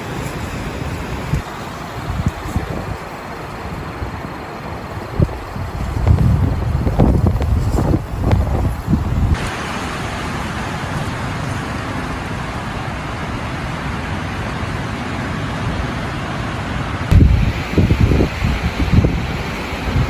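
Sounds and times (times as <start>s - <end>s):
wind buffeting microphone: 0.0s - 11.8s, 17.0s - 20.0s
heavy rain falling: 0.0s - 20.0s.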